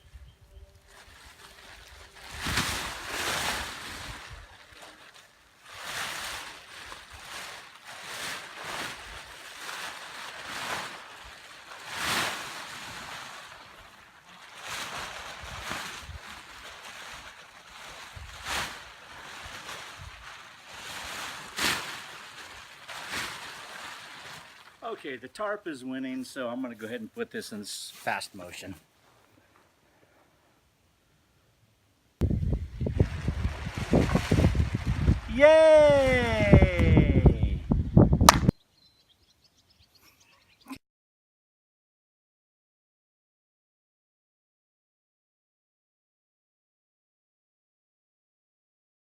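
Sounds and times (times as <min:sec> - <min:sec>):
tarp rustling and flapping: 0:00.4 - 0:25.0, 0:32.2 - 0:37.6
gusty wind buffeting microphone: 0:32.2 - 0:38.5.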